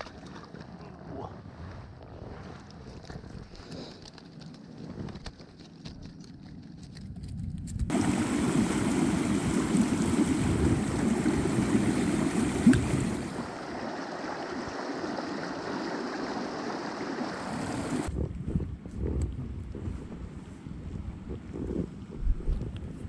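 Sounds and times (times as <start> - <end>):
creek water flowing: 7.9 - 18.1.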